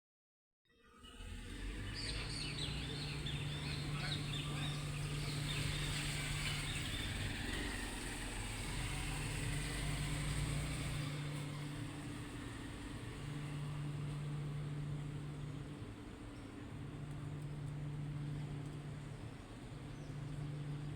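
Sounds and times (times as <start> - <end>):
low mechanical hum: 0.9 - 20.9
small birds chirping: 1.8 - 11.7.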